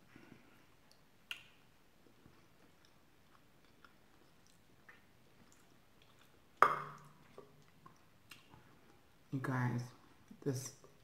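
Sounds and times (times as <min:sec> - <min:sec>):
mouth chewing with wet clicks: 0:00.7 - 0:09.1.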